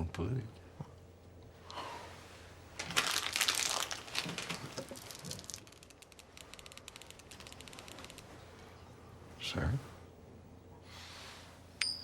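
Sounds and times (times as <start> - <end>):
plastic wrapper crinkling: 2.8 - 6.3.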